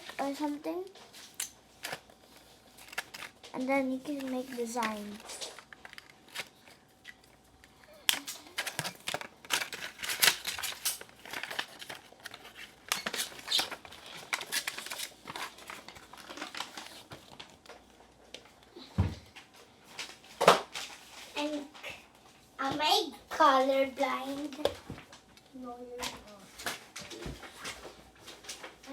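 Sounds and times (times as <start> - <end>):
paper rustling and scratching: 0.0 - 7.4, 8.0 - 18.6.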